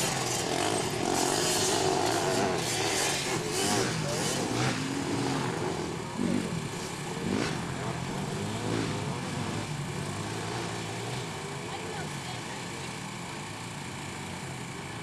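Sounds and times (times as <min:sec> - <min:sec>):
small racing engines revving: 0:00.0 - 0:15.0.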